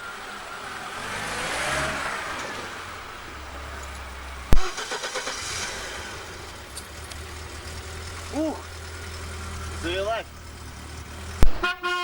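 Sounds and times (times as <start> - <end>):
car passing by: 0.0 - 11.4.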